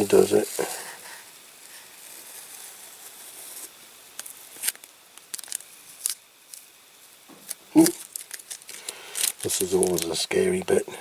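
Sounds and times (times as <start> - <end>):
faint hiss: 0.0 - 11.0
small objects clicking: 4.1 - 6.7, 7.3 - 10.2.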